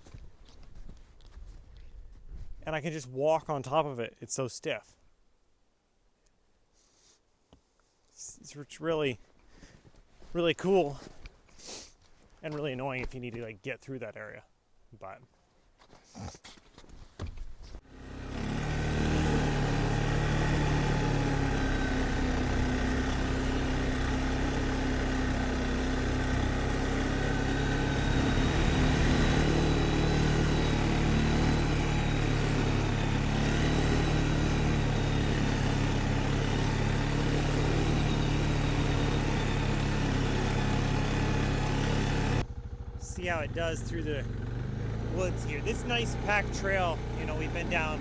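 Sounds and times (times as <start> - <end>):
vehicle engine starting and running: 17.8 - 48.0.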